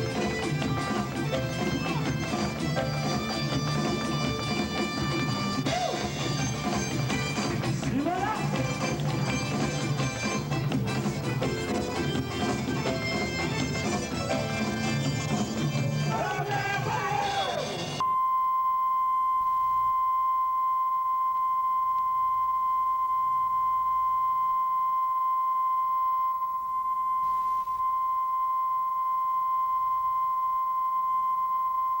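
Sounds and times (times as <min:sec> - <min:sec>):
band music: 0:00.0 - 0:18.0
steady test tone: 0:18.0 - 0:32.0.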